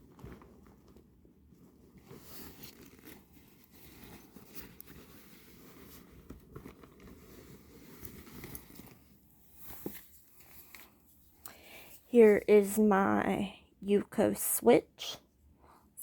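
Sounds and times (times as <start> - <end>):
gear rustling and handling: 0.0 - 12.6.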